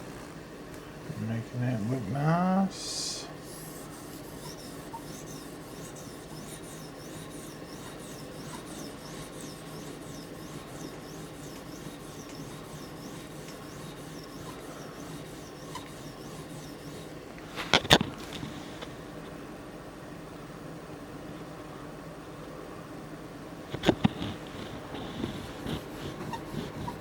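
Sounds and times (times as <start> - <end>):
knife rubbing on sharpening stone: 3.4 - 18.8, 23.8 - 27.0.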